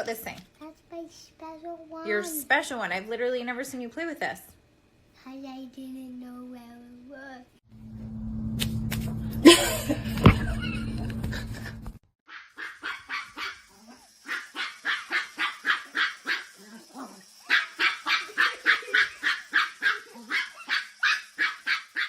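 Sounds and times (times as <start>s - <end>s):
dog barking: 12.3s - 16.6s, 17.4s - 22.0s.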